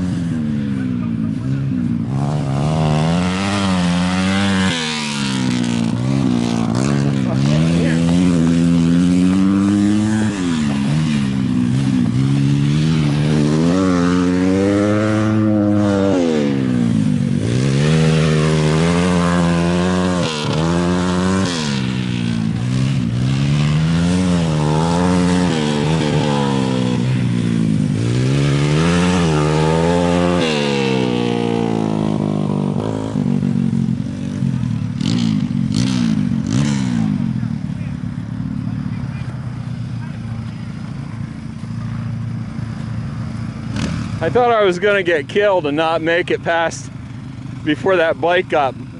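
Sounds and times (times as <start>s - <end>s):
motorcycle engines racing: 0.0s - 48.9s.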